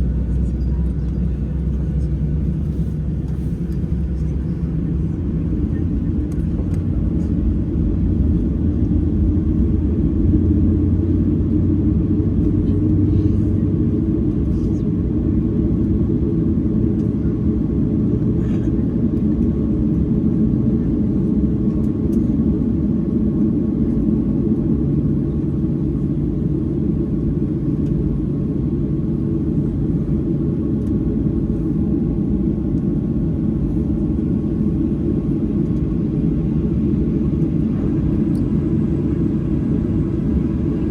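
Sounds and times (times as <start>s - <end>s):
airplane cabin low rumble: 0.0s - 40.9s.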